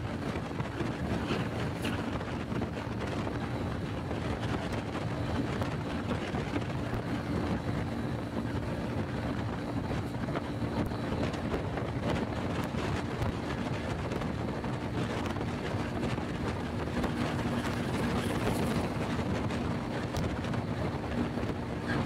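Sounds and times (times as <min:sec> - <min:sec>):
motorcycle engine running: 0:00.0 - 0:22.0
wind rushing over microphone: 0:00.0 - 0:22.0.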